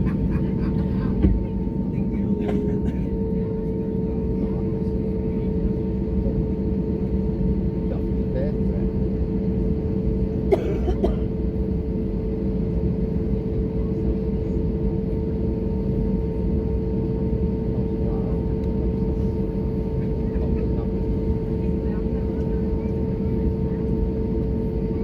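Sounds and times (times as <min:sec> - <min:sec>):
passenger coughing: 0:00.0 - 0:03.3, 0:10.3 - 0:11.7
aircraft cabin engine rumble: 0:00.0 - 0:25.0.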